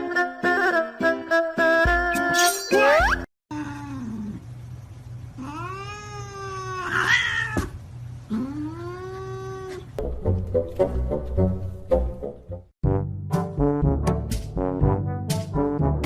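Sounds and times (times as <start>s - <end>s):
cat yowling: 5.4s - 7.7s.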